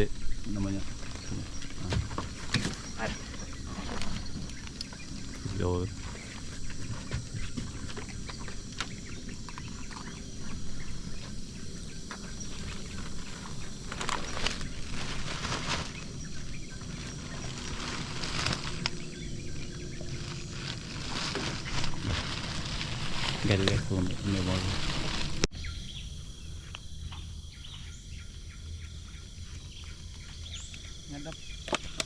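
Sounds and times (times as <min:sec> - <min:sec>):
faint high insect tones: 0:00.0 - 0:32.0
steady hiss: 0:10.4 - 0:25.5.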